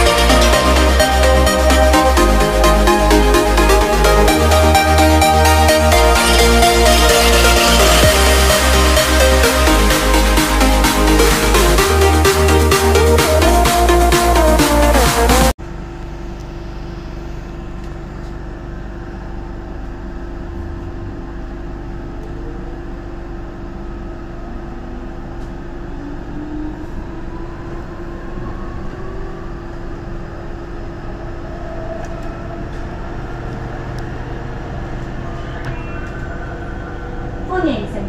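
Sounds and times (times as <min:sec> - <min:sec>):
train motor whine rising: 0:00.0 - 0:38.0.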